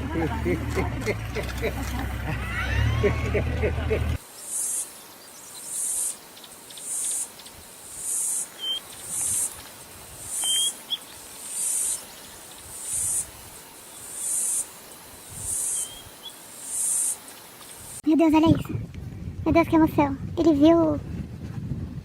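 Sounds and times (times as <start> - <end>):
insect high-pitched pulses: 4.2 - 18.0
bird chirps: 8.0 - 9.5, 10.3 - 13.2, 15.4 - 17.2.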